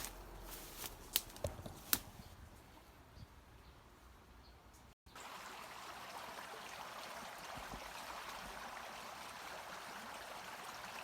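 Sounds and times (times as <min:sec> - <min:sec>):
stream flowing: 0:05.1 - 0:11.0.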